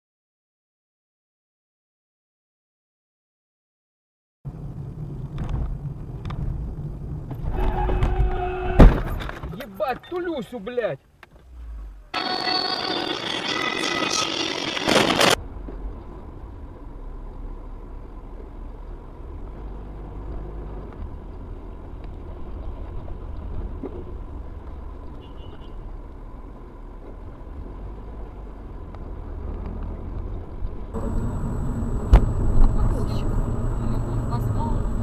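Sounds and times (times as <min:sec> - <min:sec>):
road vehicle rumble: 0:04.5 - 0:07.8, 0:15.3 - 0:35.0.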